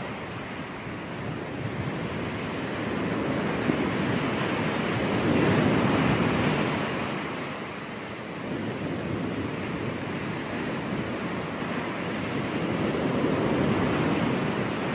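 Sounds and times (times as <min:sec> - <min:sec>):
waves breaking on a beach: 0:00.0 - 0:14.9.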